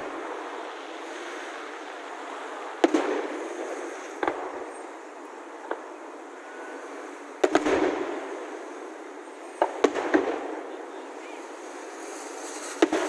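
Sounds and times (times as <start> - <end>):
distant firework bangs: 2.7 - 13.0.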